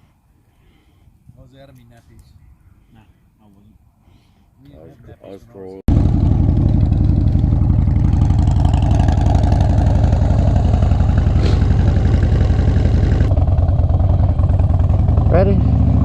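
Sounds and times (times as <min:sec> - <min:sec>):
motorcycle engine idling: 0:05.9 - 0:16.0.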